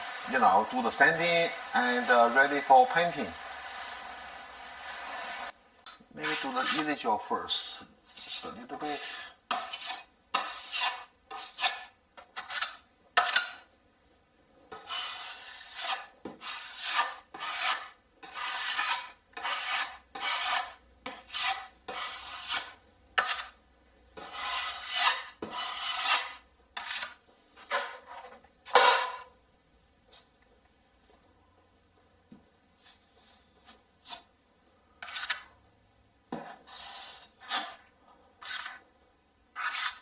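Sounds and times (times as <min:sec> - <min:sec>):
putty knife scraping compound: 0:06.2 - 0:13.7, 0:14.7 - 0:23.6, 0:24.2 - 0:29.2, 0:32.8 - 0:34.3, 0:35.0 - 0:35.6, 0:36.3 - 0:38.9, 0:39.5 - 0:40.0.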